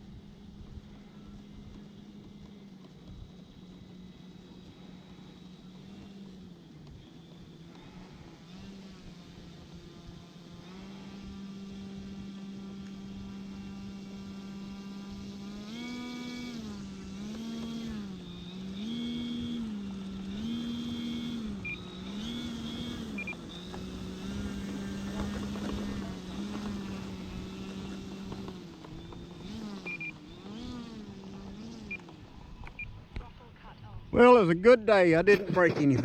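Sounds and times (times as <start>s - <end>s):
model plane engine and propeller: 0.0s - 36.0s
short high beeps: 29.9s - 30.2s.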